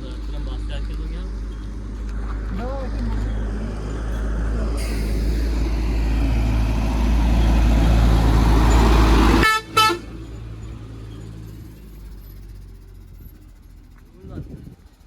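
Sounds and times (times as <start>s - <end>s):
road noise: 0.0s - 15.0s
vehicle engine running: 0.0s - 15.0s
short horn toot: 9.4s - 10.2s.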